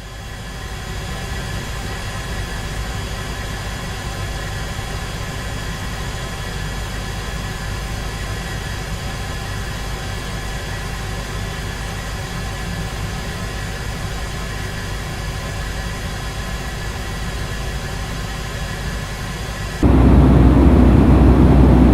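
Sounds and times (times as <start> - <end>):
aircraft engines droning: 19.8 - 21.9.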